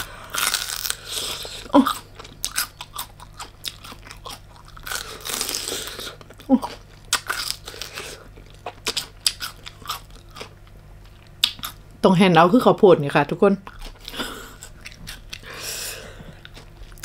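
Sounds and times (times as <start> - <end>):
person chewing crunchy food: 0.0 - 11.8, 13.6 - 17.0.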